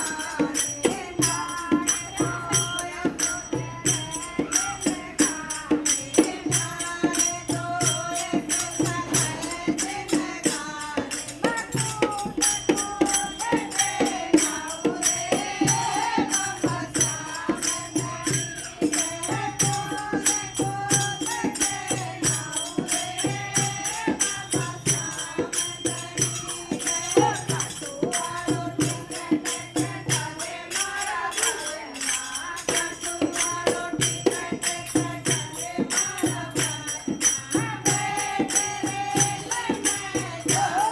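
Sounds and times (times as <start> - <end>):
drum beat: 0.0 - 31.0, 32.8 - 40.9
shaken jingles: 11.2 - 40.9
person singing: 39.8 - 40.9.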